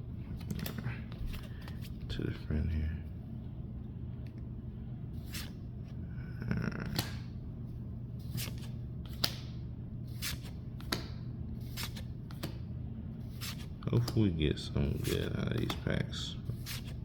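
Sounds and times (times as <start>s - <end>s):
steady low hum: 0.0s - 17.0s
cards swishing and snapping: 5.2s - 5.6s, 6.8s - 7.3s, 8.2s - 12.6s, 13.2s - 14.2s, 14.9s - 15.9s, 16.5s - 17.0s.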